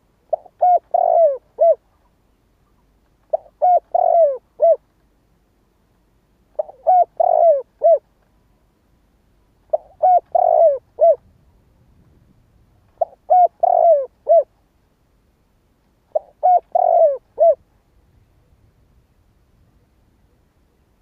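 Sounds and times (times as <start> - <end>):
dove cooing: 0.0 - 2.0, 3.3 - 4.8, 6.5 - 8.1, 9.7 - 11.3, 13.0 - 14.5, 16.1 - 17.7.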